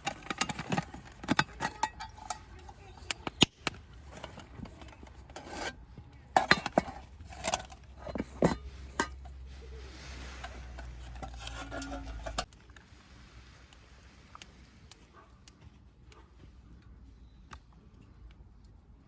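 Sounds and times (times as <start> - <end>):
metal utensils clinking on cookware: 0.0 - 12.5.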